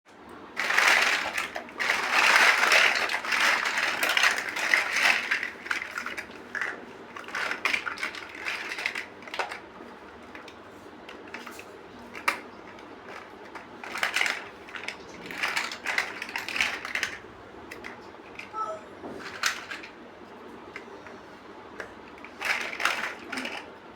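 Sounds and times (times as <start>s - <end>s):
plastic bricks rattling and clicking: 0.6s - 9.6s, 11.1s - 18.5s, 19.2s - 19.9s, 22.2s - 23.7s.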